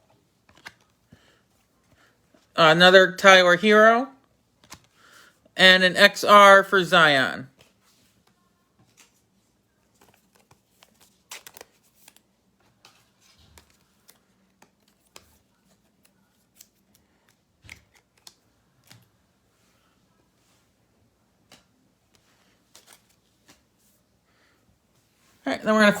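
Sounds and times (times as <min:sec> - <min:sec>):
cards and plastic packaging rustling: 0:00.0 - 0:02.6, 0:04.5 - 0:05.1, 0:07.5 - 0:19.7, 0:21.4 - 0:24.1.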